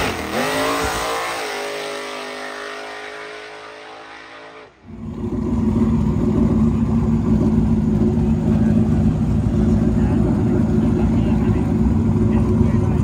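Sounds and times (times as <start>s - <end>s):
drag car engine at speed: 0.0s - 13.0s
car engine running close by: 4.8s - 13.0s.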